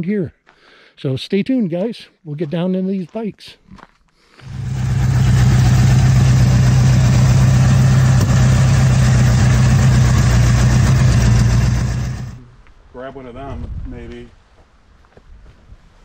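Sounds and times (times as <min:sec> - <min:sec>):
car engine idling: 0:04.4 - 0:12.4.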